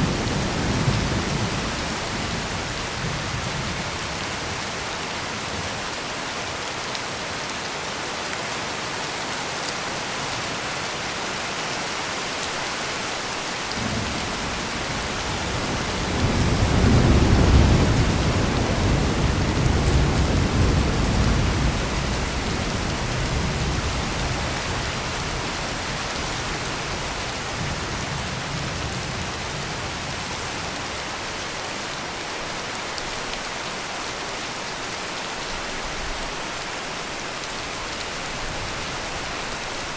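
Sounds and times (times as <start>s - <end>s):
heavy rain: 0.0s - 39.9s
thunder rolling: 13.8s - 24.5s.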